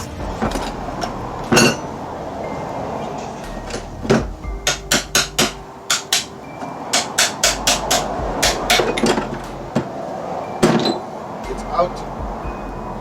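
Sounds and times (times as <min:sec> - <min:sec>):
hammer striking metal: 0:03.3 - 0:09.9.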